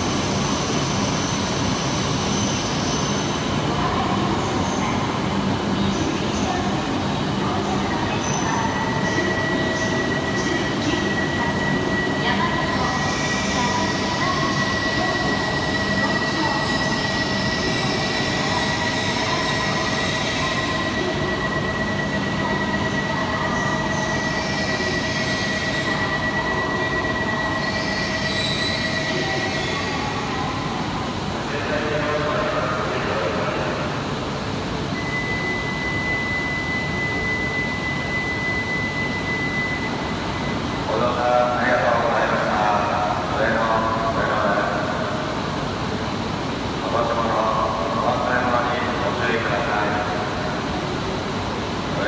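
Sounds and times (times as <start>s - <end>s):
train high squeal: 0.0s - 3.6s, 8.2s - 30.5s, 34.9s - 41.6s.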